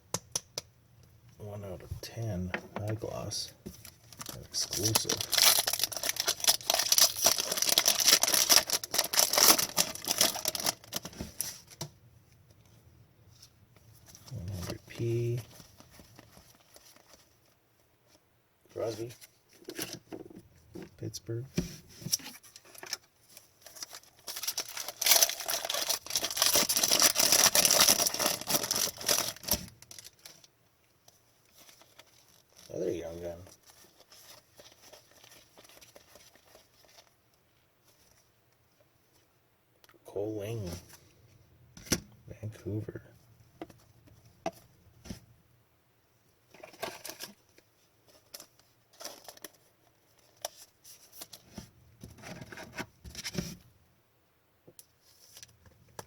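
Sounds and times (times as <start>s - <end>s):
wrapper crinkling and tearing: 3.8s - 11.7s, 22.5s - 30.5s, 31.4s - 32.8s, 33.4s - 37.2s, 46.6s - 51.4s.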